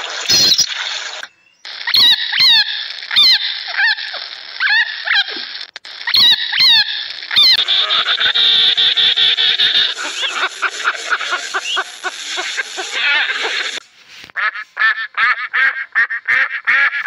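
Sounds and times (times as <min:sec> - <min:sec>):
rapid pulsed animal calls: 0:01.7 - 0:13.8.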